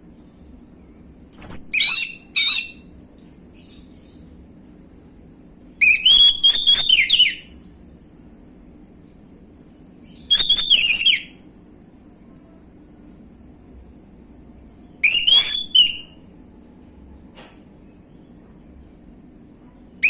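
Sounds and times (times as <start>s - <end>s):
thrush singing whistled song: 0.3s - 12.0s, 12.8s - 17.0s.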